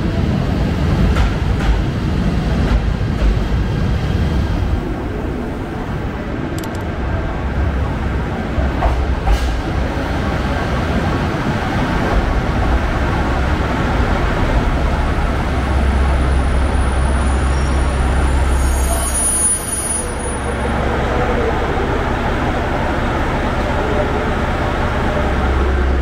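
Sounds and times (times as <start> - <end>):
train wheels and motors rumbling: 0.0 - 26.0
sharp clicks: 6.6 - 6.9.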